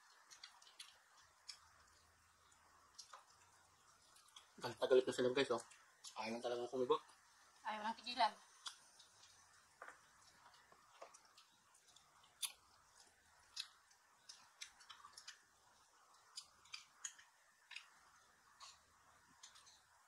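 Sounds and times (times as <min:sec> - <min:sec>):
faint room hiss: 0:00.0 - 0:20.0
people chewing food: 0:00.0 - 0:20.0.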